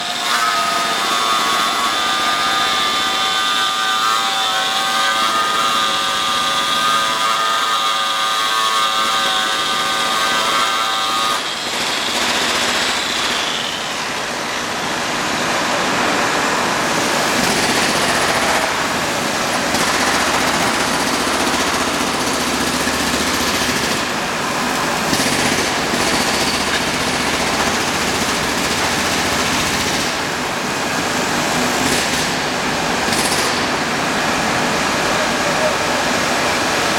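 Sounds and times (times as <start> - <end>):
loud noisy rush: 11.6 - 36.9.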